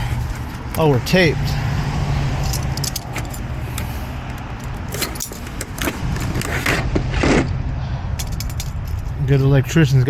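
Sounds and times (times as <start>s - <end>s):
hand tools clinking: 2.4s - 3.9s, 4.6s - 6.7s, 8.2s - 9.1s.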